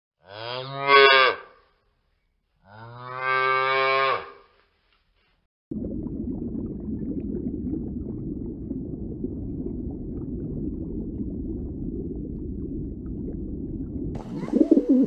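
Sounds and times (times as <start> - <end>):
low steady rumble: 5.7 - 15.0
pigeon cooing: 14.2 - 15.0.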